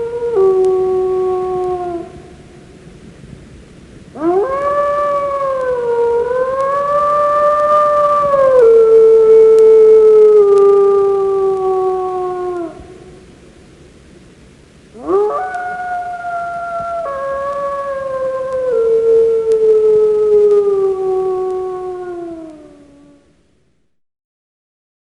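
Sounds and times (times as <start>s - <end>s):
dog howling: 0.0s - 2.4s, 4.2s - 13.3s, 15.0s - 23.3s.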